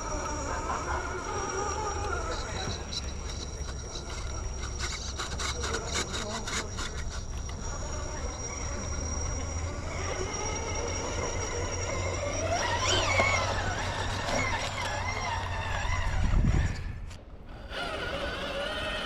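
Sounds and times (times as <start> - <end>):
electric motor and gears whining: 0.0 - 19.0
quick scrapes and clicks: 2.0 - 8.0.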